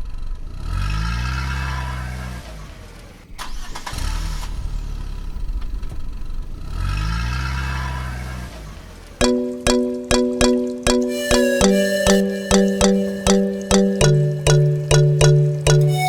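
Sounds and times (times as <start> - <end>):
plucked-string music: 9.2 - 16.0.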